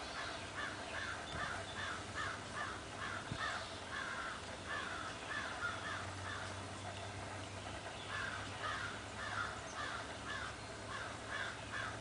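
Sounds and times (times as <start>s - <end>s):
bird harsh calls: 0.0s - 12.0s.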